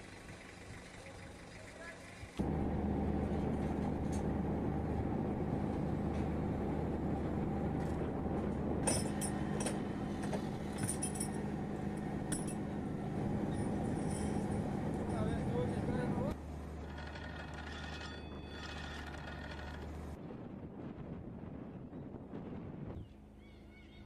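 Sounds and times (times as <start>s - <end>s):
low engine drone: 2.3s - 20.2s
light clinks: 10.7s - 12.7s, 13.5s - 15.4s.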